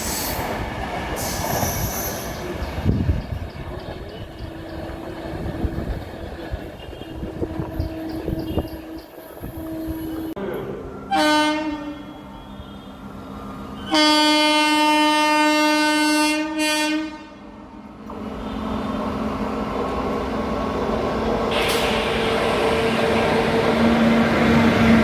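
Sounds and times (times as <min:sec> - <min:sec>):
approaching train running noise: 0:00.0 - 0:25.0
locomotive horn blasts: 0:11.1 - 0:13.0, 0:13.8 - 0:17.4.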